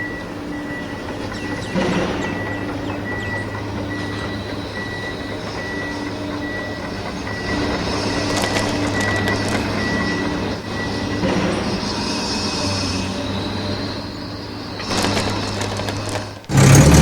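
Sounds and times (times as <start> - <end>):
short beep: 0.0 - 14.0
sharp clicks: 1.2 - 10.6, 14.8 - 16.6.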